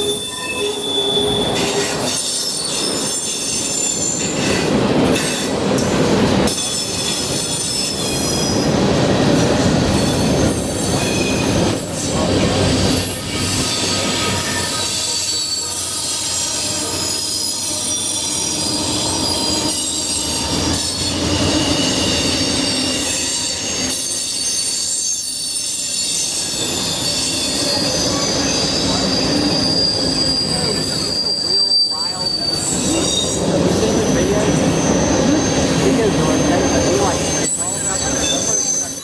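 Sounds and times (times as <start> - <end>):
train wheels squealing: 0.0 - 39.0.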